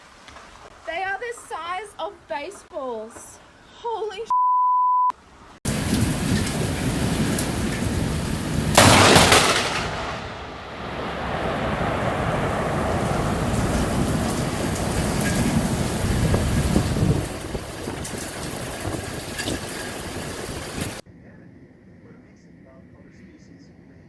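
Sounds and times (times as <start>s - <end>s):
heavy rain falling: 5.7s - 21.0s
thunder crack: 5.7s - 21.0s.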